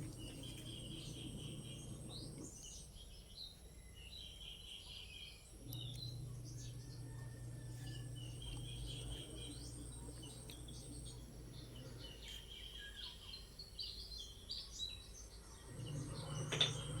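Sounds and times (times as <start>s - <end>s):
low steady hum: 0.0s - 3.4s, 5.4s - 14.2s
small birds chirping: 0.0s - 17.0s.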